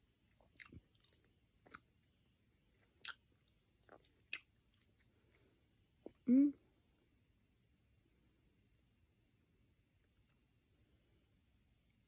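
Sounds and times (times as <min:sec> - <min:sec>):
person chewing candy: 0:00.3 - 0:02.0, 0:02.7 - 0:05.4.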